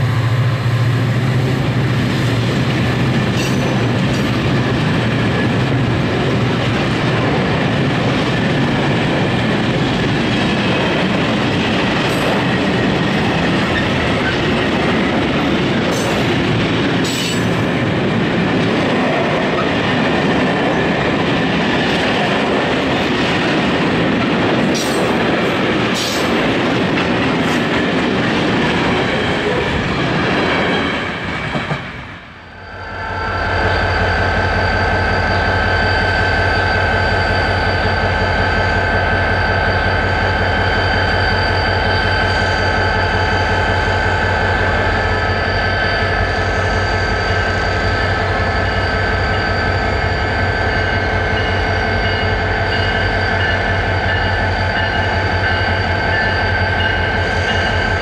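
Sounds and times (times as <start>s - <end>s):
train wheels rumbling on rail: 0.0s - 58.0s
wheel squeal: 32.6s - 44.0s, 44.9s - 58.0s.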